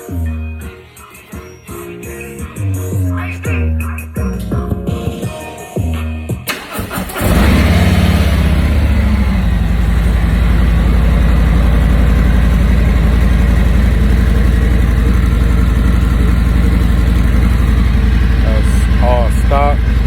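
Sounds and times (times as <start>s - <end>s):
motorcycle engine starting: 6.5s - 20.0s
motorcycle engine idling: 6.6s - 20.0s.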